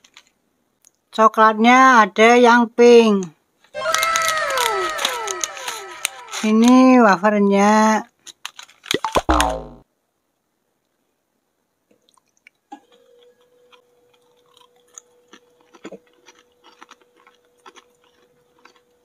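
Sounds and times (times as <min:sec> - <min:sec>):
chewing crunches: 0:12.0 - 0:19.0.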